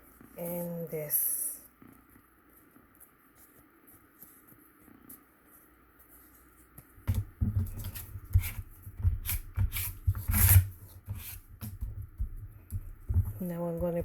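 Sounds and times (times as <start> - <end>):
cardstock folding and rubbing: 1.9 - 14.0.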